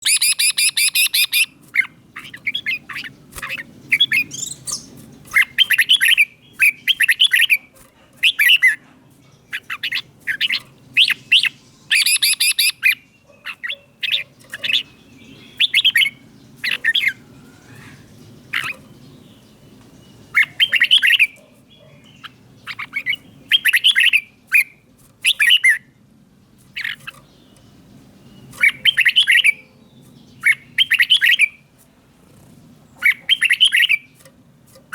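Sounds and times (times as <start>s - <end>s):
bird singing whistled phrases: 0.0s - 1.5s, 9.6s - 13.0s, 15.3s - 16.2s, 23.5s - 24.7s, 28.6s - 29.6s, 30.4s - 31.6s, 33.0s - 34.0s
harsh rasping bird notes: 0.0s - 34.9s.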